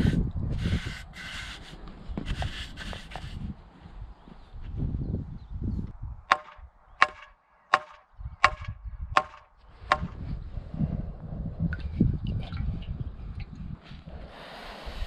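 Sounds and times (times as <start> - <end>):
hammer striking wood: 6.3 - 10.2.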